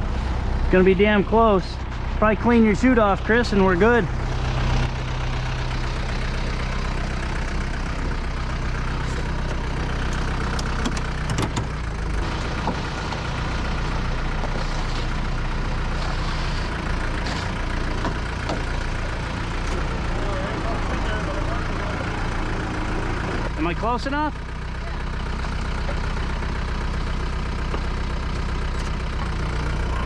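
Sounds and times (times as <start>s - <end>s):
diesel truck engine idling: 0.0s - 30.0s.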